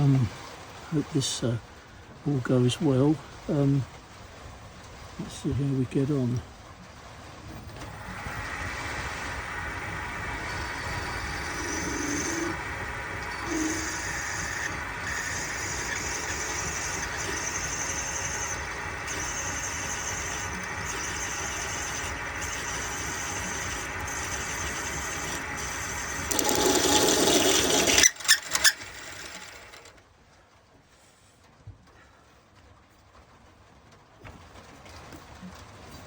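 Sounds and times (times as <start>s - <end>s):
lathe motor running: 7.4s - 29.9s
drill cutting metal whine: 7.8s - 29.9s.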